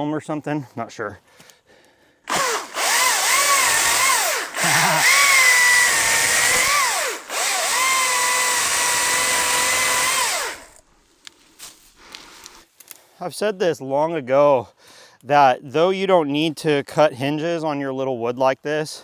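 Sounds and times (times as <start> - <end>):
electric chainsaw whining: 2.3 - 10.9.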